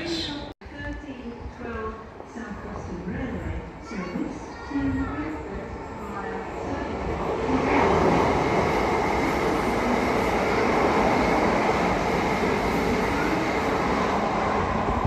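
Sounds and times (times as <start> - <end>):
train wheels rumbling on track: 6.5 - 15.0.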